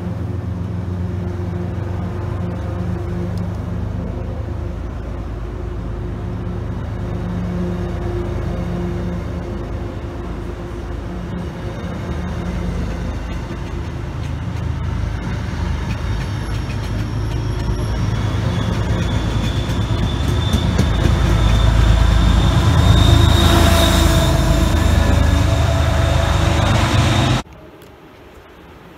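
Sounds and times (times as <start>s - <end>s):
train passing rumble: 0.0s - 28.9s
high wheel squeal: 6.5s - 27.4s.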